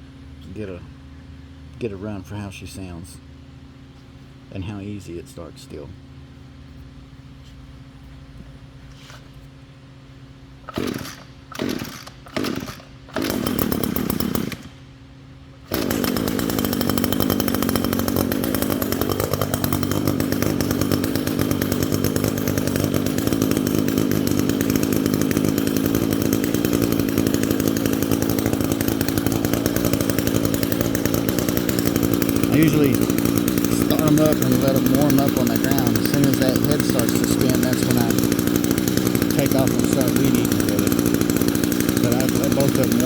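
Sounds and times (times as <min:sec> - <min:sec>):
recoil starter cord tugs: 0:10.6 - 0:14.8, 0:15.7 - 0:43.0
string trimmer engine running: 0:10.6 - 0:14.8, 0:15.6 - 0:43.0.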